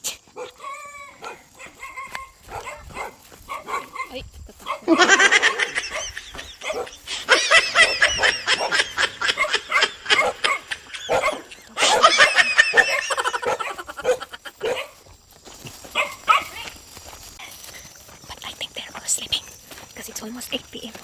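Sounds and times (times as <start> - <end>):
dogs yapping: 0.3 - 16.9.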